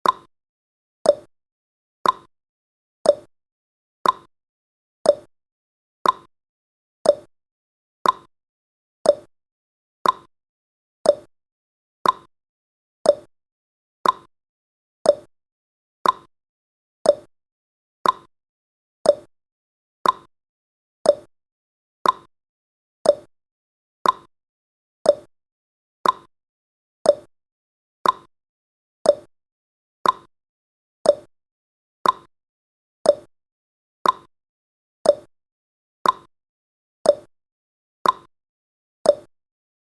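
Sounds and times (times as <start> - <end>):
clock ticking: 2.0 - 2.3, 4.0 - 4.3, 6.0 - 6.3, 8.0 - 8.3, 10.0 - 10.3, 12.0 - 12.3, 14.0 - 14.3, 18.0 - 18.3, 20.0 - 20.3, 22.0 - 22.3, 24.0 - 24.3, 26.0 - 26.3, 28.0 - 28.3, 29.1 - 29.3, 30.0 - 30.3, 31.1 - 31.3, 32.0 - 32.3, 33.1 - 33.3, 34.0 - 34.3, 35.1 - 35.3, 36.0 - 36.3, 38.0 - 38.3, 39.1 - 39.3.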